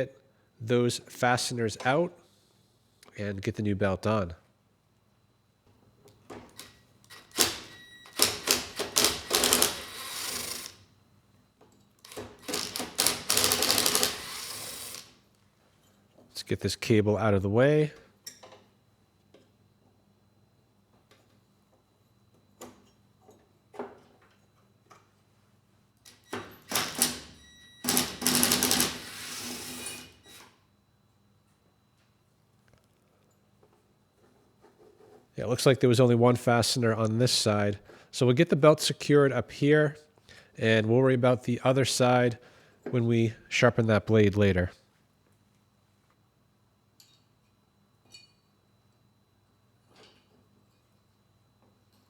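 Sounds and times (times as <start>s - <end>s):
tool clicking and rattling: 6.5s - 10.8s, 12.0s - 15.1s, 27.9s - 29.1s.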